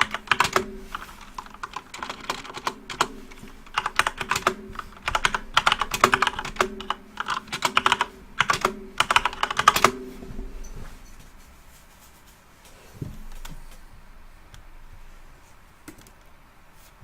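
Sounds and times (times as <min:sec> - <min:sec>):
typing on computer keyboard: 0:00.0 - 0:10.1.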